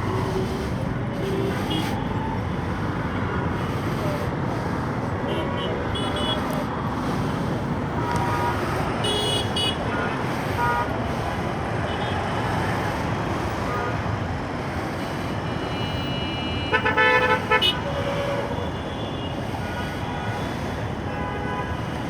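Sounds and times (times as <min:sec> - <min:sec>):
vehicle horn toots: 0:08.1 - 0:10.9, 0:15.7 - 0:19.2.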